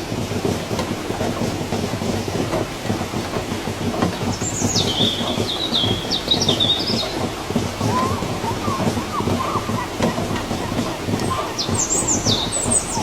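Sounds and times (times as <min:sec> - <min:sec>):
heavy rain falling: 0:00.0 - 0:13.0
bird whistling and chirping: 0:04.8 - 0:07.2, 0:07.8 - 0:13.0.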